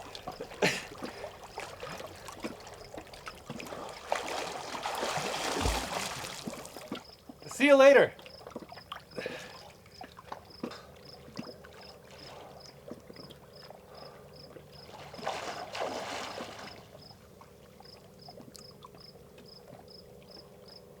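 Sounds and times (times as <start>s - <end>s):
cricket chirping: 0.0s - 4.7s, 5.4s - 15.4s, 16.2s - 20.9s
water splashing: 0.0s - 7.5s, 14.9s - 17.0s.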